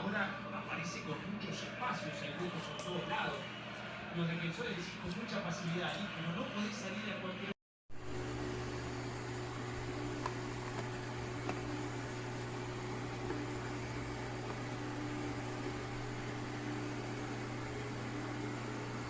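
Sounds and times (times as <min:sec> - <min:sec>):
motor hum with hiss: 0:08.0 - 0:19.0.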